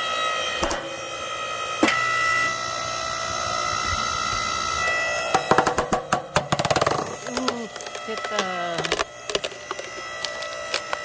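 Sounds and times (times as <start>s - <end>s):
log splitter motor whining: 0.0s - 11.0s
wood cracking and splitting: 5.2s - 11.0s.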